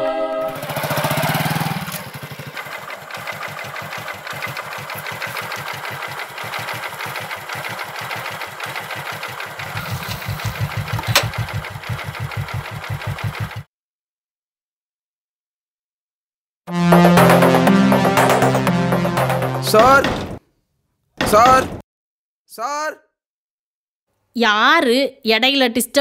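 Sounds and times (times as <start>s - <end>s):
motorcycle engine puttering: 0.6s - 13.7s
sharp click: 11.0s - 11.4s.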